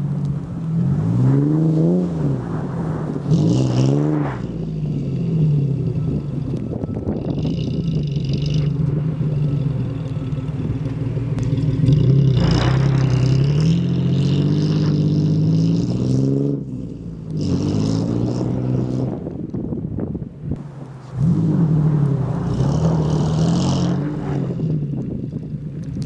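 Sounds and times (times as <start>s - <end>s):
truck engine revving: 0.0s - 19.7s, 20.5s - 26.0s.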